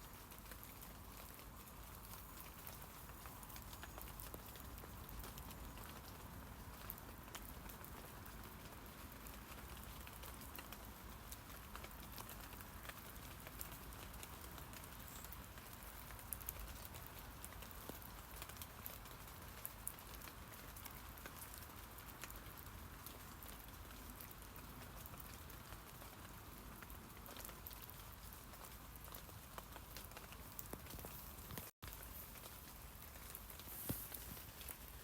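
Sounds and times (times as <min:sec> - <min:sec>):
rain pattering on leaves: 0:00.0 - 0:35.0.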